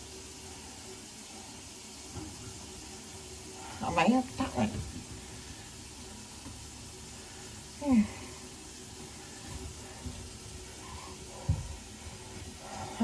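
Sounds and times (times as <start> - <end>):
tap water running into sink: 0.0 - 7.8.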